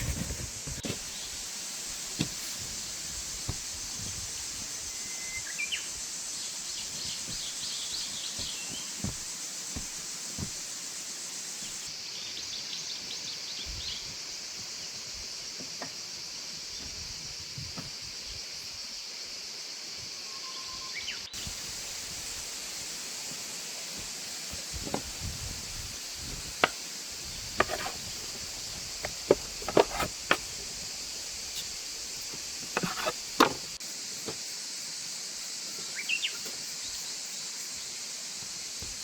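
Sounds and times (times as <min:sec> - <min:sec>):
steady high hiss: 0:00.0 - 0:39.0
small birds chirping: 0:03.4 - 0:14.2, 0:35.8 - 0:37.1.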